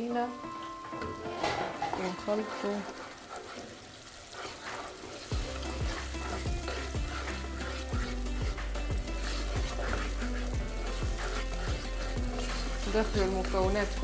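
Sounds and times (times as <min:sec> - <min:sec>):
sauce sizzling in a frying pan: 0:00.0 - 0:14.0
music with deep bass beat: 0:05.3 - 0:14.0.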